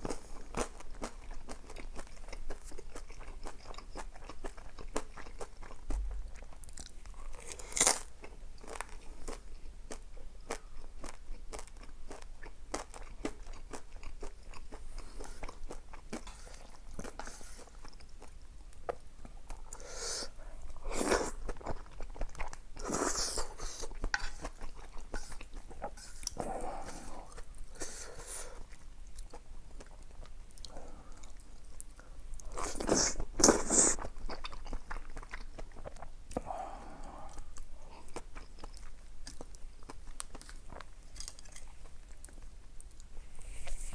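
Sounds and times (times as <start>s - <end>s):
wet chewing: 20.8s - 36.4s, 37.0s - 43.1s.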